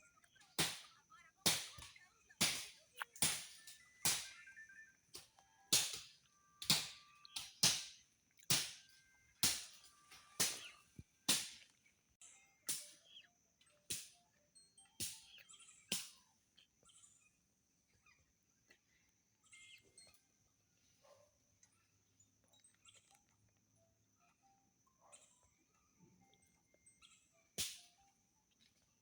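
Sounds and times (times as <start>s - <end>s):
machete chopping brush: 11.3s - 11.6s.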